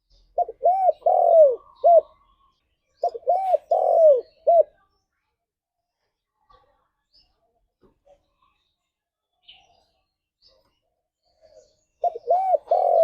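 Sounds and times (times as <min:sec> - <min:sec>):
dove cooing: 0:00.2 - 0:02.3, 0:03.0 - 0:04.8, 0:12.0 - 0:13.0.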